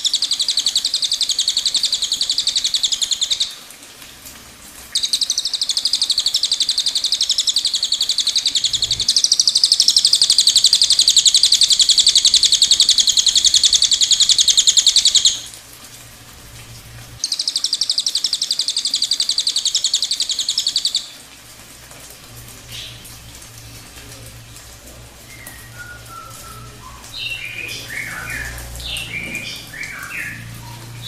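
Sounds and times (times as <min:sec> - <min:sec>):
bird trilling: 0:04.9 - 0:15.5, 0:25.2 - 0:31.0.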